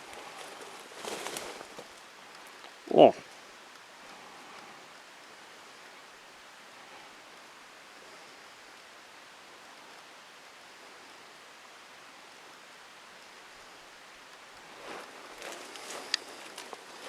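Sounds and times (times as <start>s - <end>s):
rustling: 0.0s - 3.2s, 14.6s - 17.0s
faint outdoor hiss: 0.0s - 17.0s.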